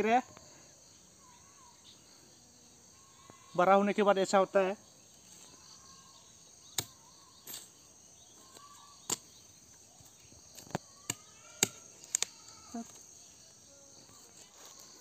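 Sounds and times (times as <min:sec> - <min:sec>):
high insect chirring: 0:00.0 - 0:15.0.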